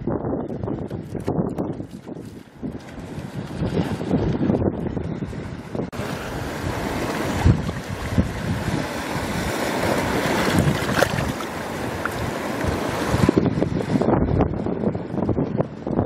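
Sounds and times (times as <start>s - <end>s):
wind buffeting microphone: 0.0s - 16.0s
surf hissing on beach: 5.3s - 14.1s.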